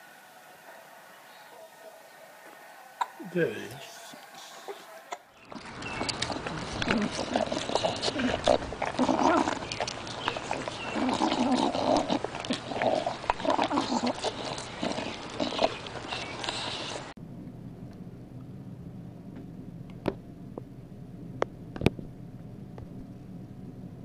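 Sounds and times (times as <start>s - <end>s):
animal noises: 0.0s - 17.2s.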